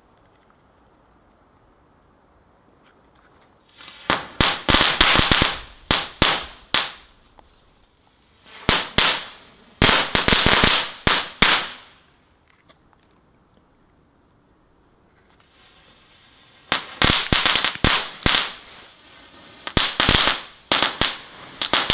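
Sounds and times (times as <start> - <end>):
fireworks hissing and banging: 3.6 - 12.2, 15.0 - 21.9.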